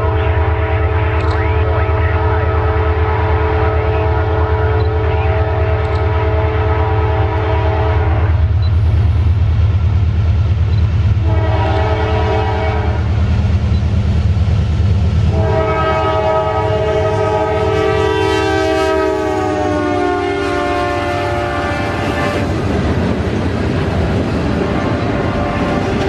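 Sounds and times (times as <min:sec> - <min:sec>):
train air horn: 0:00.0 - 0:08.5, 0:11.2 - 0:13.1, 0:15.3 - 0:22.5, 0:24.6 - 0:26.0
diesel freight train rumbling: 0:00.0 - 0:26.0.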